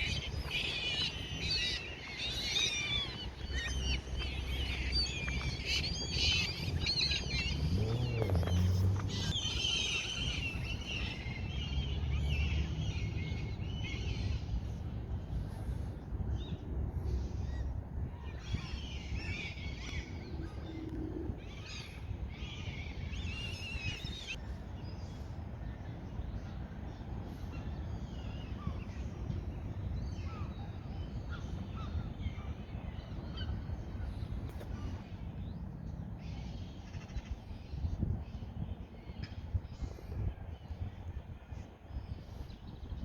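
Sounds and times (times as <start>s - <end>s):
birds chirping: 0.0s - 24.4s
low rumble: 2.8s - 13.1s.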